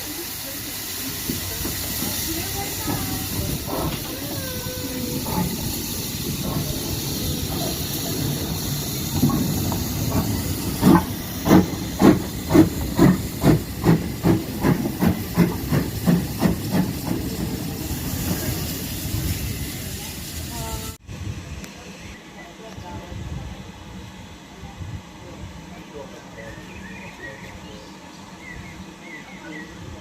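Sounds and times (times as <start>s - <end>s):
locomotive exhaust chuffs: 0.0s - 21.0s
steam locomotive hissing: 0.0s - 30.0s.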